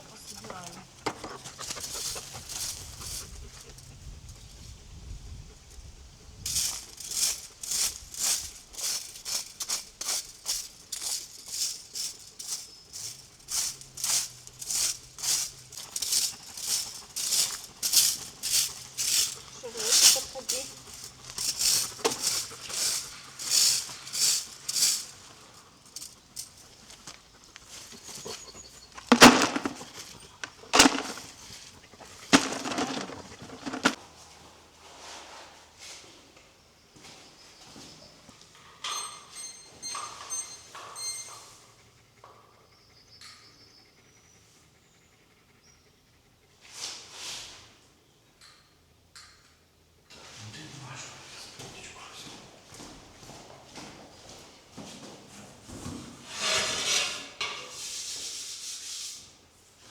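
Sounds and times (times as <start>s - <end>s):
clattering rattle: 0.0s - 3.9s, 6.4s - 34.0s
rhythmic raspy scraping: 0.0s - 4.6s, 6.5s - 34.0s.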